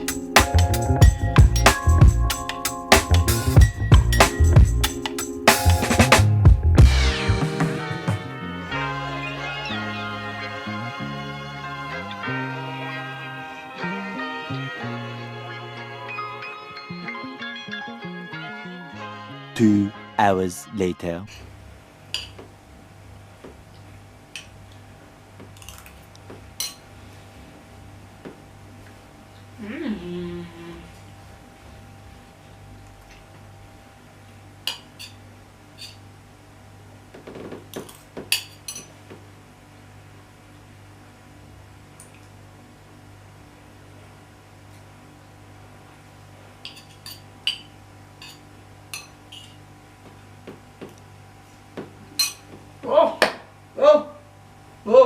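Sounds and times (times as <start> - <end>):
steady low hum: 0.0 - 16.1
dishes and utensils clinking: 46.7 - 48.4, 52.2 - 52.4.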